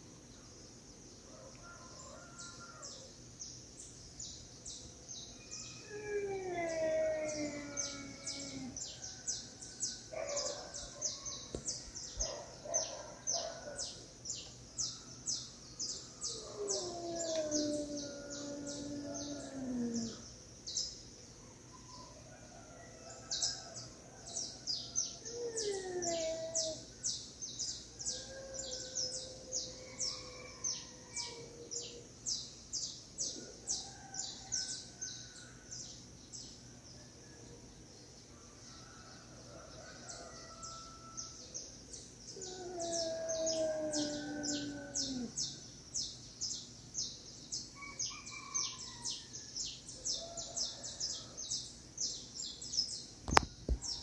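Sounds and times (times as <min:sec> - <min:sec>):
cats yowling: 0:05.5 - 0:08.8, 0:16.2 - 0:20.2, 0:25.2 - 0:26.8, 0:42.4 - 0:45.4.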